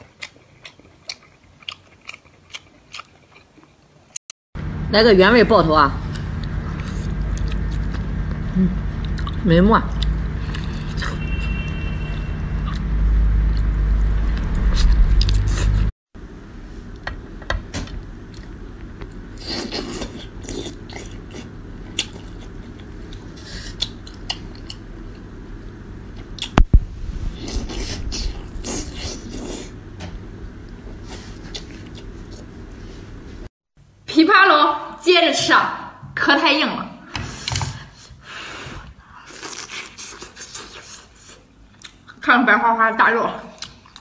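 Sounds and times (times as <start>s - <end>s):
heavy low rumble: 4.6s - 15.9s, 26.6s - 30.9s.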